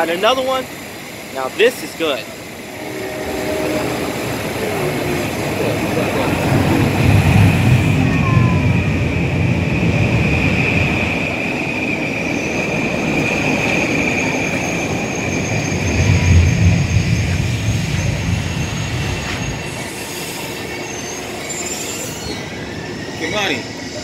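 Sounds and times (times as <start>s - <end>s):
high-pitched train whine: 0.0s - 24.0s
train wheels rumbling on rails: 0.0s - 24.0s
higher electric tone: 1.9s - 8.9s.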